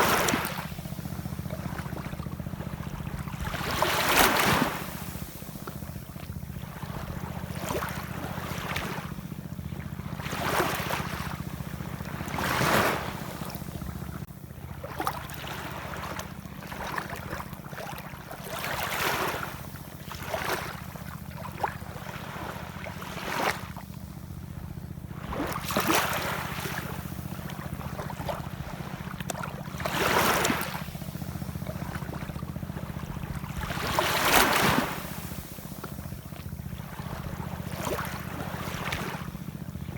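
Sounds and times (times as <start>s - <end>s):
ocean waves washing in: 6.2s - 14.3s, 25.1s - 39.9s
steady low rumble: 23.8s - 39.9s.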